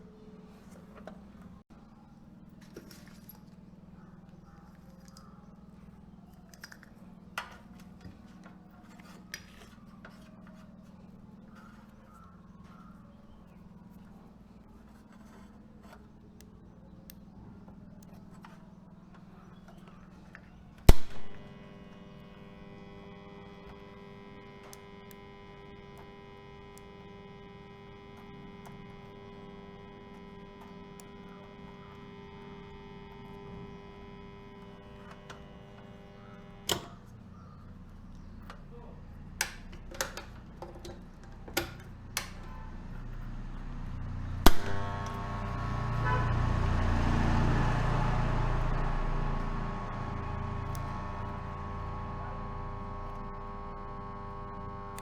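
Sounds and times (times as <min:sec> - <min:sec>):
steady electrical hum: 0:00.0 - 0:55.0
switch clicks: 0:20.8 - 0:21.6, 0:39.4 - 0:42.5, 0:44.5 - 0:45.3.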